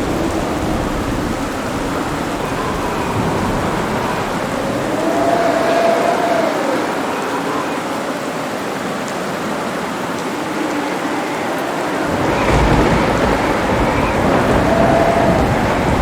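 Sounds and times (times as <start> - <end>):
thunder rumbling: 0.0 - 7.2, 10.4 - 16.0
steady rain: 0.0 - 16.0.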